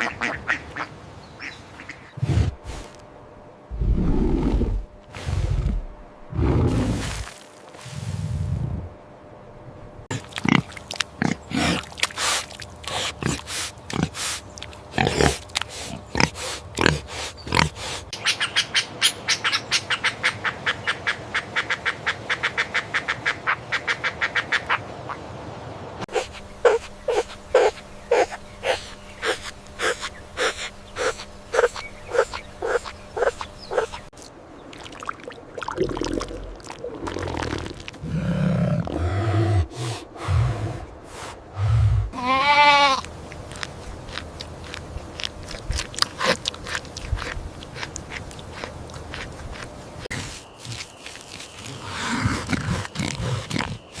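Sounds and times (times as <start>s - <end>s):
pigs grunting: 10.1s - 18.0s, 26.1s - 34.0s, 36.9s - 40.9s, 51.7s - 54.0s.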